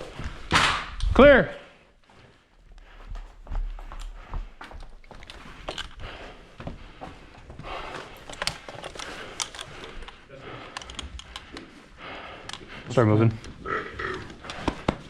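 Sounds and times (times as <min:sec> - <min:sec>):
footsteps: 0:00.0 - 0:15.0
gear rustling: 0:02.4 - 0:12.7.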